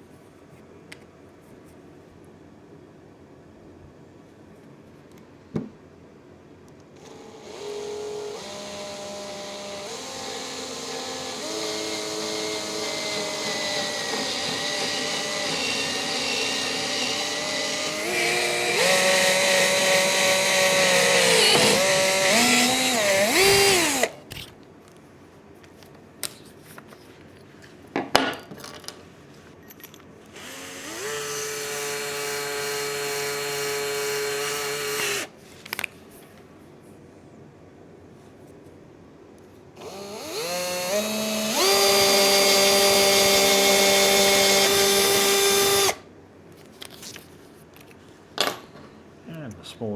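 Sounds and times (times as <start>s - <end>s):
electric drill boring wood: 7.0s - 24.4s, 30.4s - 35.3s, 39.8s - 46.0s
drill click: 7.0s - 24.6s, 30.3s - 35.3s, 39.8s - 46.0s.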